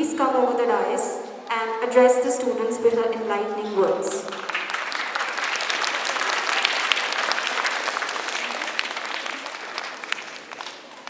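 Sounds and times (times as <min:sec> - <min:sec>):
audience clapping: 0:04.2 - 0:11.0.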